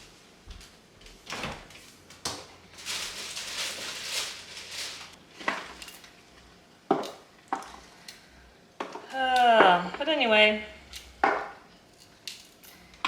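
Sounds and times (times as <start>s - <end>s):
rustling: 2.8s - 5.2s.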